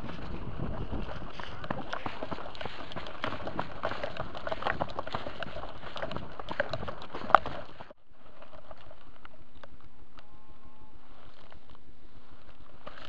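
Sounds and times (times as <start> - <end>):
footsteps crunching through dry brush: 0.0 - 9.9, 10.9 - 13.0
faint low hum: 8.0 - 13.0.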